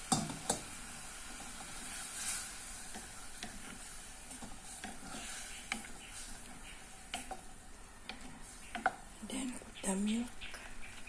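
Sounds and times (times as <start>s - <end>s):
chicken sizzling in bubbling liquid: 0.0s - 11.0s
wooden spoon knocking pot: 0.1s - 0.6s, 8.0s - 9.1s.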